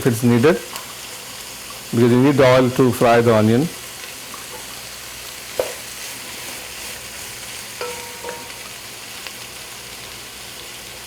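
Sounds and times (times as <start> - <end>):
onions sizzling in oil: 0.0 - 11.0
utensil knocking against pan: 7.8 - 8.6.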